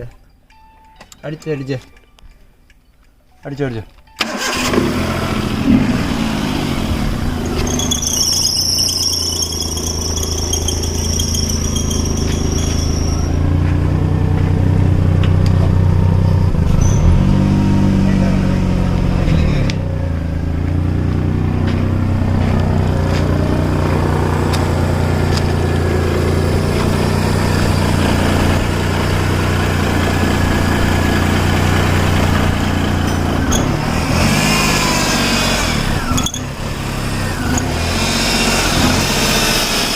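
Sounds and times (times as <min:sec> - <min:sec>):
high-pitched whine: 0:05.4 - 0:19.6
car engine idling unevenly: 0:17.3 - 0:33.8.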